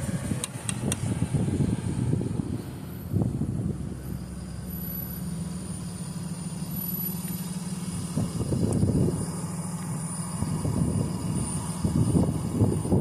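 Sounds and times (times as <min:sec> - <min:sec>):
wind buffeting microphone: 0:00.0 - 0:04.0, 0:08.0 - 0:09.3, 0:10.4 - 0:13.0
low rumble: 0:00.0 - 0:05.8, 0:07.9 - 0:13.0.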